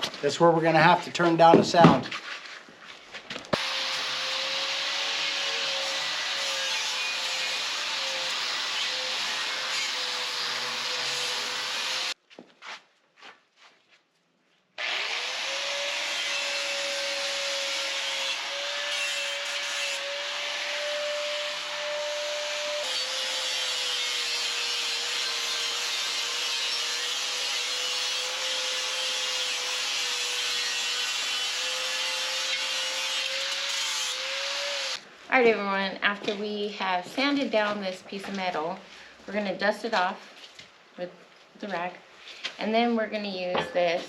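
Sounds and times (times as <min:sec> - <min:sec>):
angle grinder sanding metal: 0:03.6 - 0:12.2, 0:14.8 - 0:35.0.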